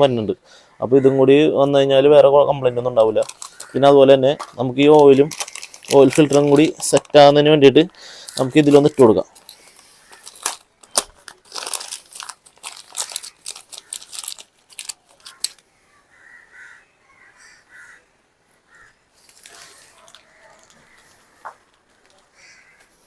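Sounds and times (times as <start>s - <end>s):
plastic wrapping crinkling: 2.9s - 7.6s, 8.2s - 15.6s, 19.2s - 22.3s.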